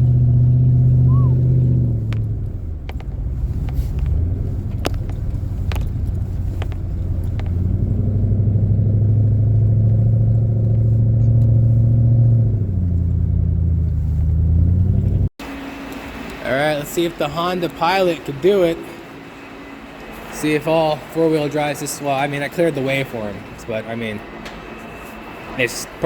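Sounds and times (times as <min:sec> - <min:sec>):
car engine running under load: 0:00.0 - 0:26.0.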